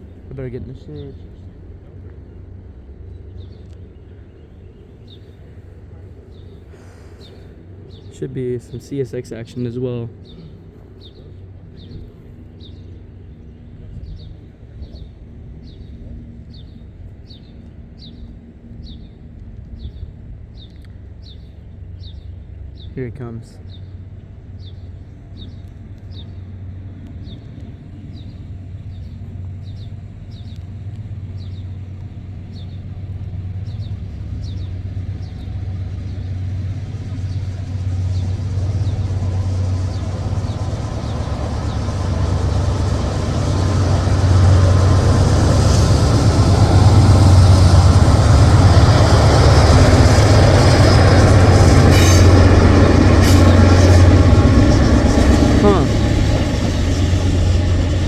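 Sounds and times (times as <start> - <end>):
diesel locomotive engine hum: 0.0 - 58.0
train rail noise: 30.8 - 58.0.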